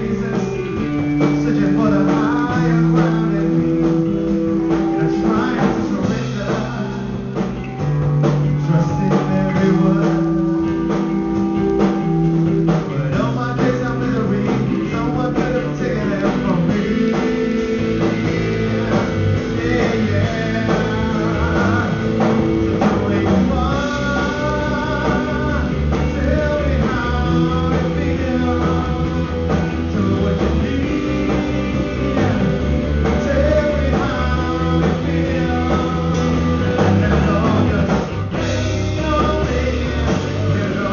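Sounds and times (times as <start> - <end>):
live blues-rock band: 0.0 - 40.9.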